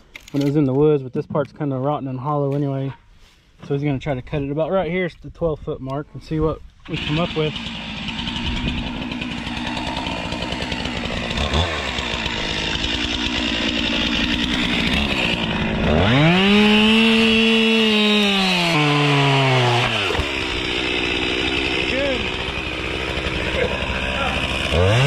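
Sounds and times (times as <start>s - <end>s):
chainsaw cutting log: 6.8s - 25.0s.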